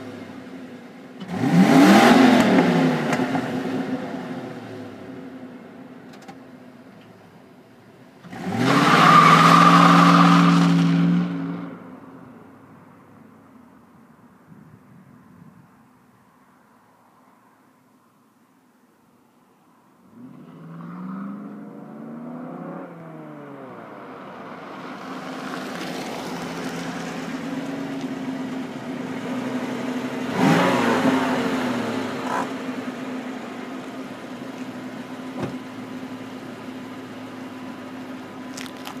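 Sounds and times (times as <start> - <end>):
engine revving: 1.2 - 3.9, 8.2 - 11.7, 20.1 - 23.8, 29.3 - 32.6
car engine starting and idling: 21.4 - 39.0.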